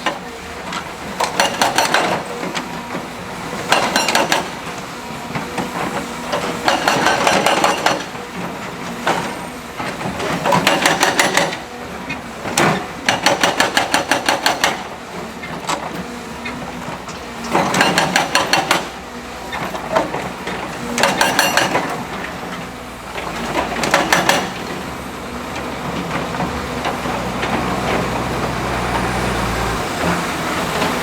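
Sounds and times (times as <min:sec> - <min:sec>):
machinery engine drone: 0:24.6 - 0:31.0.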